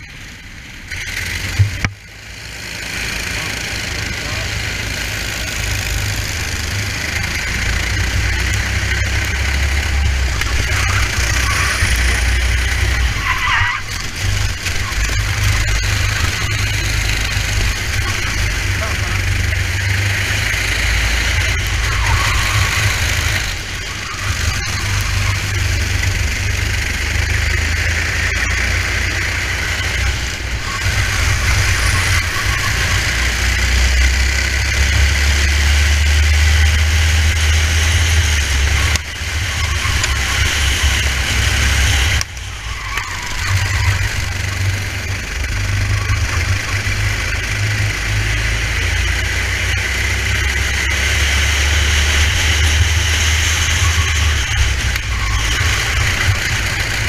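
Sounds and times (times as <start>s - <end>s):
kart engine running hard: 0.0s - 57.0s.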